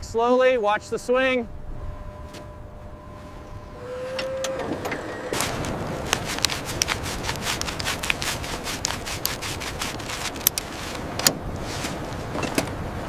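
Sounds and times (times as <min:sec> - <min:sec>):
scraping and rubbing: 0:05.0 - 0:12.6
sharp clicks and ticks: 0:06.1 - 0:10.7.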